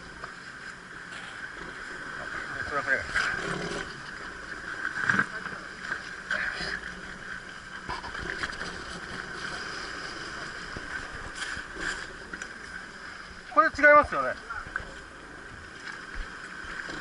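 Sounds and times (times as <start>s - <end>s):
boat engine running: 0.0s - 13.0s
sea noise: 0.0s - 17.0s
wind: 0.0s - 17.0s.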